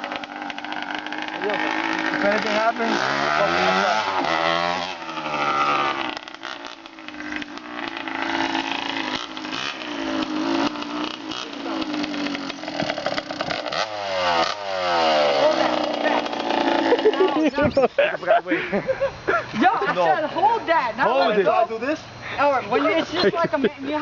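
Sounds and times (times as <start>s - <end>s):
dirt bike engine revving: 0.0s - 18.6s.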